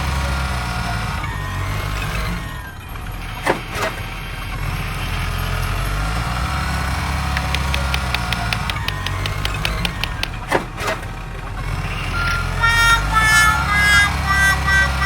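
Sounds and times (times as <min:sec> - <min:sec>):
toy engine drone: 0:00.0 - 0:15.0
sharp knocks: 0:03.4 - 0:04.1, 0:07.4 - 0:11.2
rapid ticks: 0:07.2 - 0:12.5.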